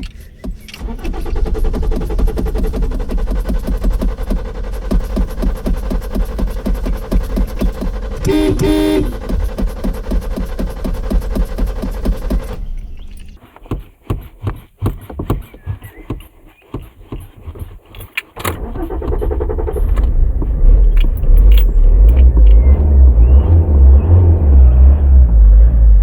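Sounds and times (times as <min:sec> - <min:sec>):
car engine revving unevenly: 0:00.0 - 0:13.4, 0:18.5 - 0:26.0
car starter cranking: 0:00.0 - 0:13.9, 0:17.5 - 0:23.5
clicking and rattling: 0:00.0 - 0:22.8.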